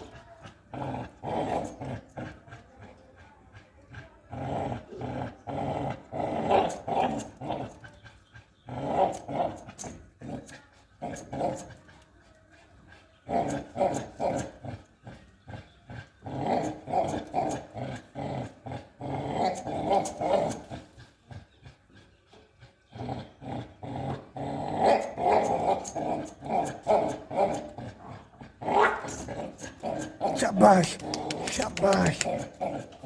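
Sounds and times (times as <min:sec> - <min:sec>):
dog growling: 0:00.0 - 0:33.0.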